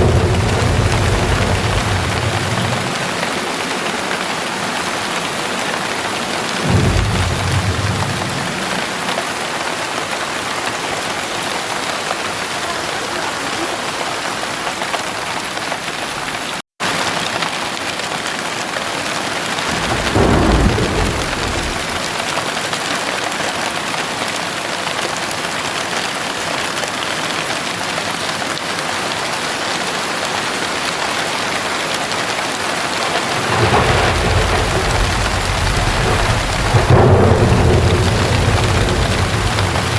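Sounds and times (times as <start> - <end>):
thunder rumbling: 0.0 - 10.2, 19.5 - 22.6, 33.1 - 39.9
heavy rain falling: 0.0 - 39.9.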